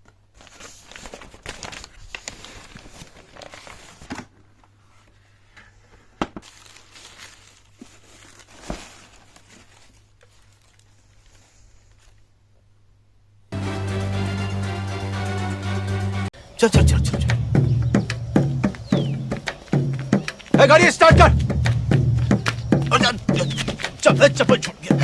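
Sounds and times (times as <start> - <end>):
box packaging crinkling: 0.4 - 4.2, 6.4 - 11.4.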